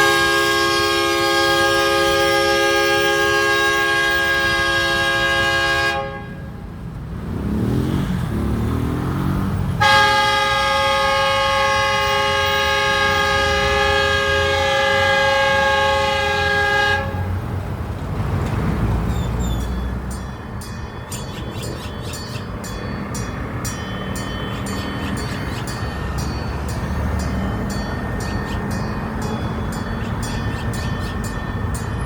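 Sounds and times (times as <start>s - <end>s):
locomotive horn blasts: 0.0s - 6.7s, 9.8s - 17.4s.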